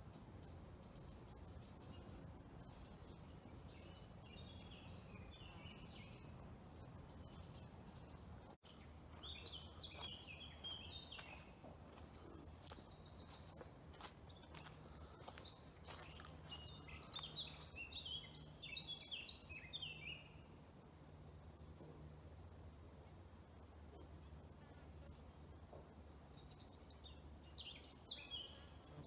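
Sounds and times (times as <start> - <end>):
low steady hum: 0.0 - 29.0
songbird chirps and trills: 0.0 - 29.0.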